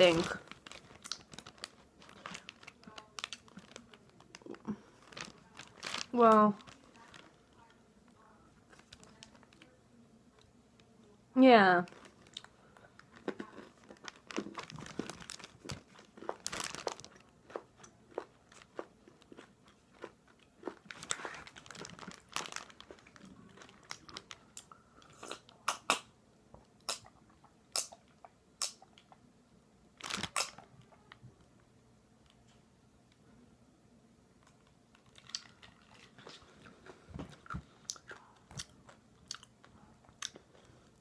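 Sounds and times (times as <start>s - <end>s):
chewing crunchy candy: 0.2s - 7.7s, 11.9s - 26.0s, 35.0s - 41.0s.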